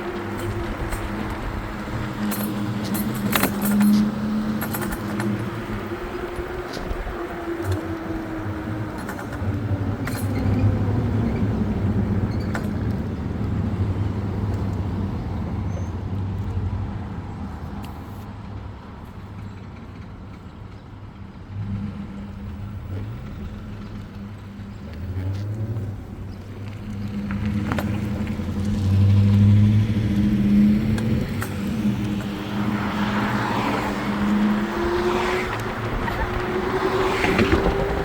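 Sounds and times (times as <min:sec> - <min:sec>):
vehicle engine accelerating: 0:00.0 - 0:18.3, 0:21.5 - 0:38.0
whine climbing: 0:24.9 - 0:38.0.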